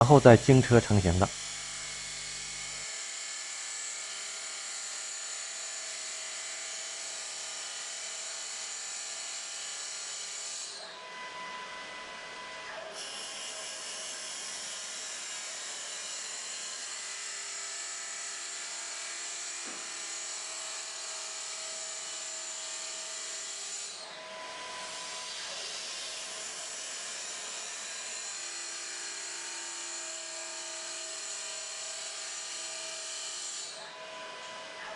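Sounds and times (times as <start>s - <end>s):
wood lathe cutting whine: 8.2s - 34.9s.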